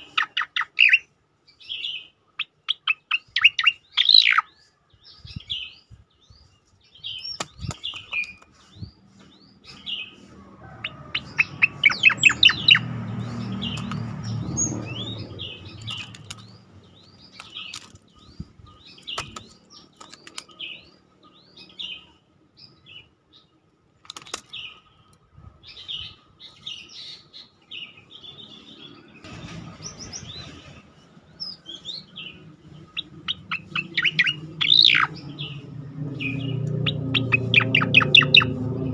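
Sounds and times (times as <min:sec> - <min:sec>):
bird chirping and whistling: 0:00.0 - 0:01.1, 0:01.8 - 0:04.6, 0:11.2 - 0:16.2, 0:31.5 - 0:35.6, 0:36.2 - 0:38.6
low rumble: 0:34.4 - 0:38.9.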